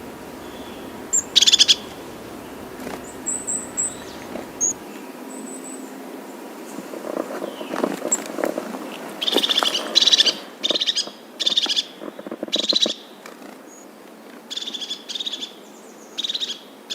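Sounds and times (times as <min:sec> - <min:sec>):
bird chattering call: 0:00.0 - 0:04.8
knocks and rustling: 0:01.9 - 0:04.8.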